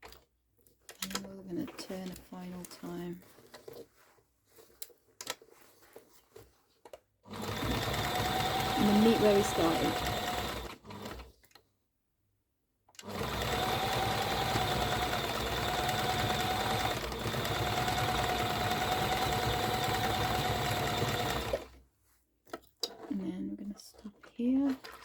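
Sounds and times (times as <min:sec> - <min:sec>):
sewing machine stitching: 0:07.3 - 0:11.3, 0:13.0 - 0:21.8.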